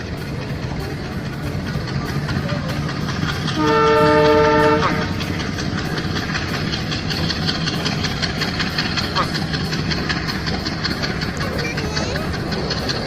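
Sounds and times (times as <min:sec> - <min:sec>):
train rattling: 0:00.0 - 0:13.0
train horn: 0:03.5 - 0:05.3.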